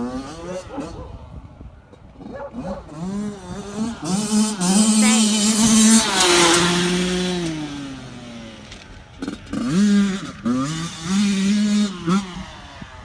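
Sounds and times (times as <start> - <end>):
dirt bike engine revving: 2.1 - 13.0.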